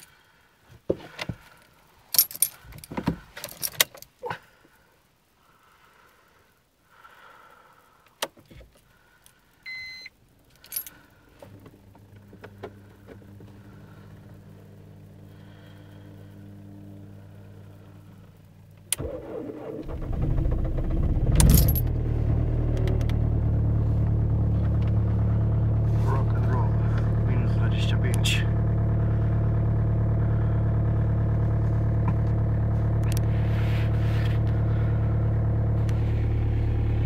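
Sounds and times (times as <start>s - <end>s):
faint steady hum: 0.0s - 37.0s
diesel engine running rough: 12.2s - 37.0s
starter cranking: 18.9s - 23.2s.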